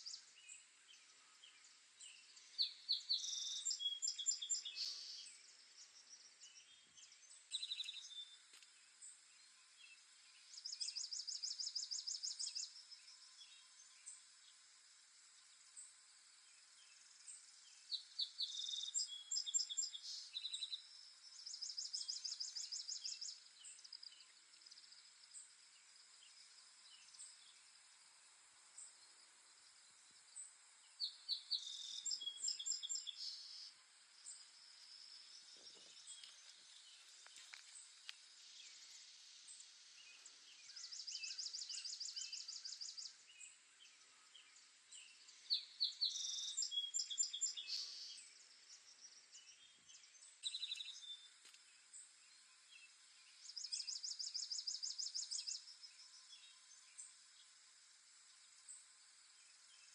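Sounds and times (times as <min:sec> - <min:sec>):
faint bird chirps: 0:00.0 - 0:59.9
songbirds singing: 0:00.0 - 0:59.9
steady high hiss: 0:19.0 - 0:59.9.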